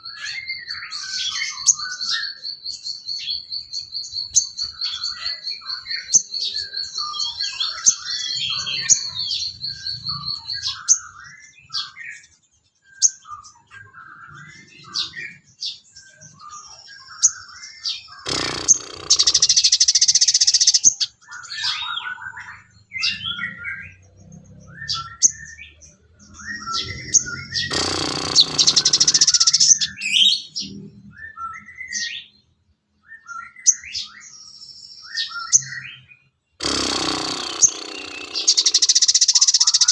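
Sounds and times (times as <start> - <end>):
high bird trill: 0.0 - 12.3, 12.9 - 32.4, 36.6 - 39.9
bird chirps and whistles: 17.0 - 23.4, 26.3 - 30.5, 37.5 - 39.9
loud harsh buzzing burst: 18.3 - 19.9, 27.5 - 29.9, 36.6 - 39.9.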